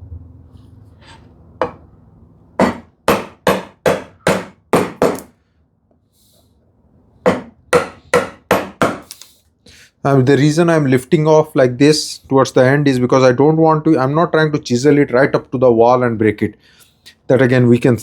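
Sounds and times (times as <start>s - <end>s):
mallet striking chisel in wood: 1.6s - 1.8s, 2.6s - 5.3s, 7.3s - 9.1s.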